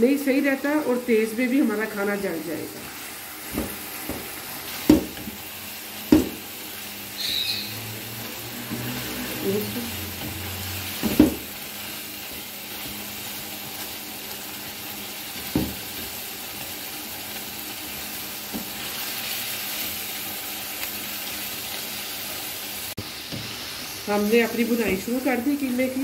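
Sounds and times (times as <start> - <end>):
meat sizzling in a pan: 0.0 - 26.0
spoon knocking on a pan: 3.5 - 5.4, 6.1 - 6.4, 11.0 - 11.5, 15.4 - 15.8.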